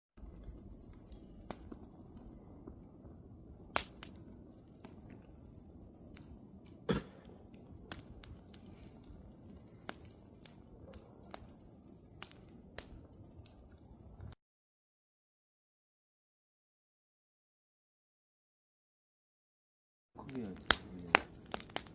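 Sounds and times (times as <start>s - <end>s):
campfire crackling: 0.2s - 14.4s, 20.2s - 21.9s.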